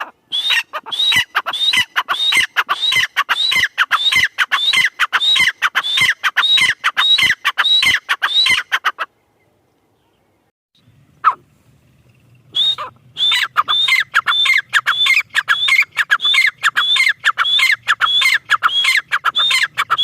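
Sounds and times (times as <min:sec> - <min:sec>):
bird calling in high notes: 0:12.2 - 0:20.0.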